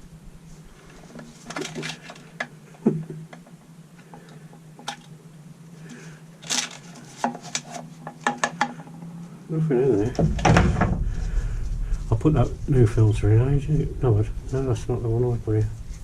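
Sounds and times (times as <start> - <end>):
steady low hum: 0.0 - 16.0
plastic parts clicking and tapping: 6.4 - 9.0.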